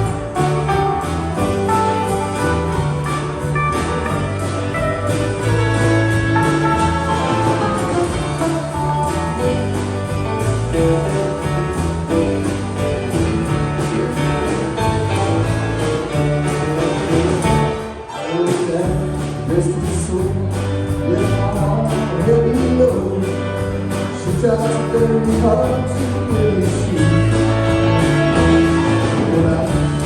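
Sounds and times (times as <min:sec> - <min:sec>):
drums: 0:00.0 - 0:30.0
guitar: 0:00.0 - 0:30.0
person singing: 0:16.5 - 0:30.0.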